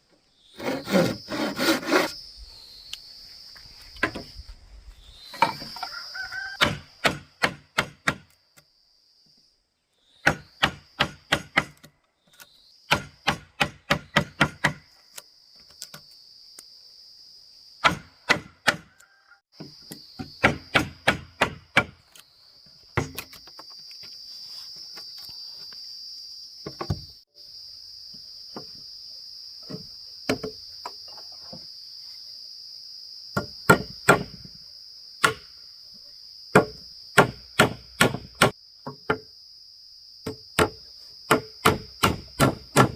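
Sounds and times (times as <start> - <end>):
high insect buzz: 0.3 - 42.9
hand tool striking wood: 6.6 - 8.3, 10.2 - 11.9, 12.9 - 14.9, 17.8 - 18.9, 19.6 - 22.1, 22.9 - 23.5, 29.7 - 31.0, 33.4 - 34.5, 35.2 - 35.5, 36.5 - 39.3, 40.2 - 42.9.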